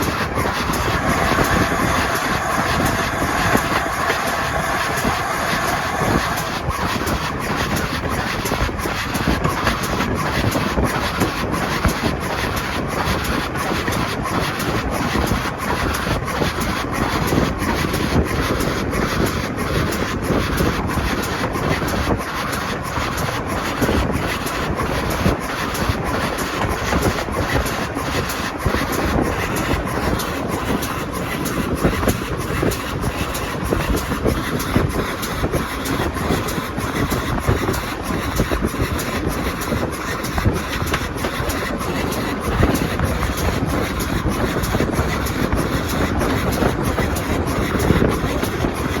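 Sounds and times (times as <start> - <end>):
train rumbling and rattling: 0.0 - 49.0.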